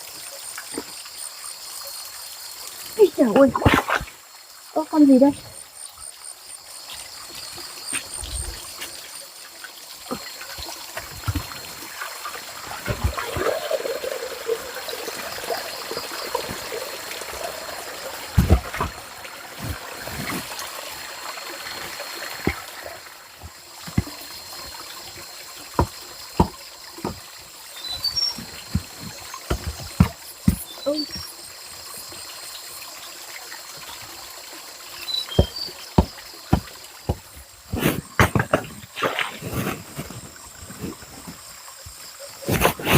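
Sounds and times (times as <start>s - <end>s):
water trickling: 0.0s - 42.9s
sharp knocks and clatter: 25.7s - 27.3s, 35.3s - 39.0s.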